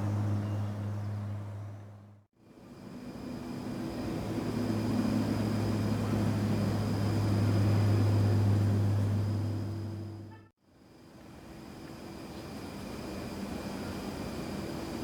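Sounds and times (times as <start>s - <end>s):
military aircraft passing: 0.0s - 10.3s.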